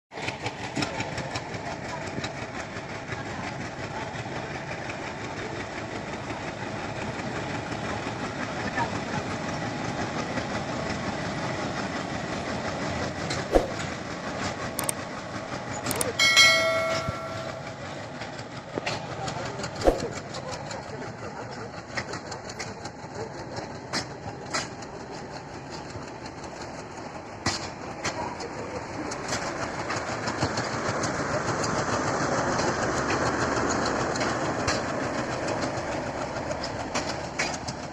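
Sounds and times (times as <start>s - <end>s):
train rumbling on rails: 0.1s - 37.9s
rapid rail clicks: 12.7s - 37.9s
wheel clicks over rail joints: 14.8s - 15.0s, 15.7s - 17.8s.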